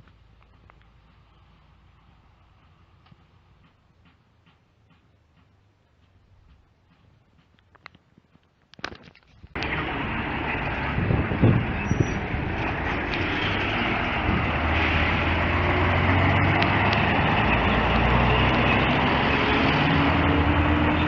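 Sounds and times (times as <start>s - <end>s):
engine knocks: 9.6s - 19.3s
bus engine running: 9.6s - 21.0s.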